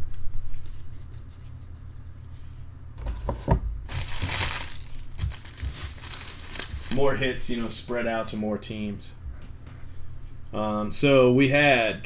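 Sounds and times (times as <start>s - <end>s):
low electrical hum: 0.0s - 12.0s
paper or plastic crinkling: 3.9s - 7.7s.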